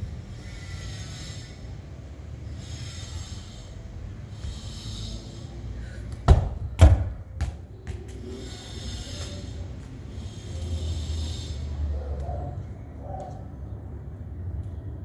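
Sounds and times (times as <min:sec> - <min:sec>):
football being kicked: 0:06.2 - 0:08.0.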